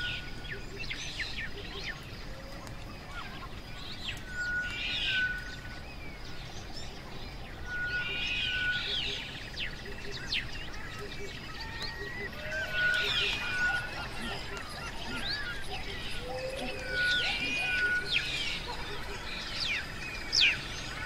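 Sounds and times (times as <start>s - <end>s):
birds chirping song: 0.0s - 21.0s
steady outdoor hiss: 0.0s - 21.0s
whistled bird note: 3.1s - 5.9s, 7.4s - 21.0s.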